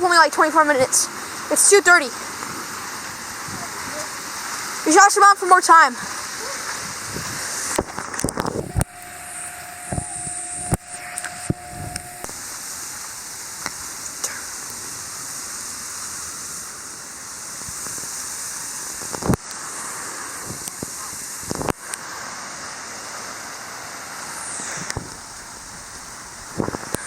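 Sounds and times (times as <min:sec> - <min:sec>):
heavy rain falling: 0:00.0 - 0:24.2.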